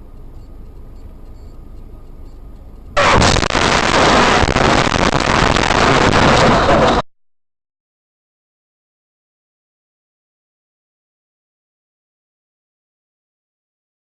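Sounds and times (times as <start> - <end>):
road rumble inside moving car: 0.0 - 7.0
harsh crash noise: 3.0 - 7.1.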